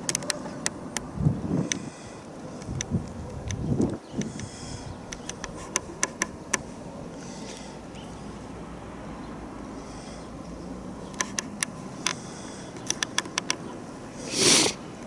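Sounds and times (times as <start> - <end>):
wind rumbling on microphone: 1.0 - 6.6
sharp clicks: 5.1 - 6.7, 11.1 - 13.7.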